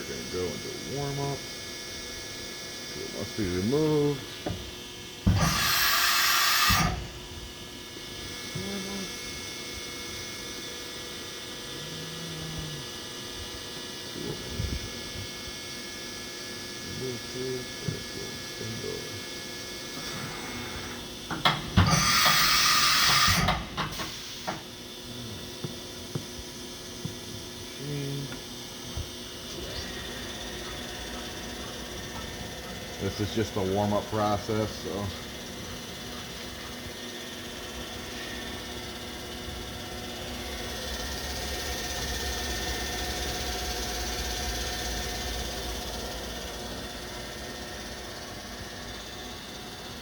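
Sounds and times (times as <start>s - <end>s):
steady low machine hum: 0.0s - 50.0s
loud hiss of air: 5.4s - 7.0s, 21.8s - 24.6s
held machine tones: 27.0s - 46.2s.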